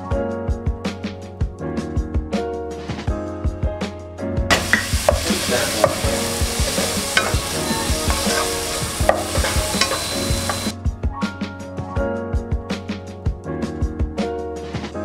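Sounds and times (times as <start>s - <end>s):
background music: 0.0s - 15.0s
wooden spatula scraping a pan: 4.5s - 10.6s
tomatoes sizzling in hot oil: 4.5s - 10.7s.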